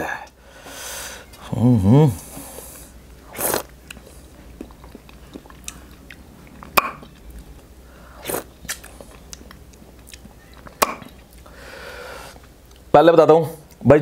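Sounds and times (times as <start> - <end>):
man chewing and lip smacking: 3.4 - 11.5, 12.4 - 12.9.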